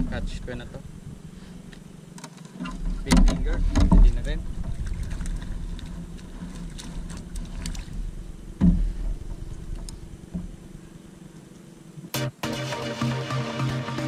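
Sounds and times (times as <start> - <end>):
wind rumble on microphone: 0.0 - 1.8, 2.8 - 11.1
dull thump: 8.6 - 10.6.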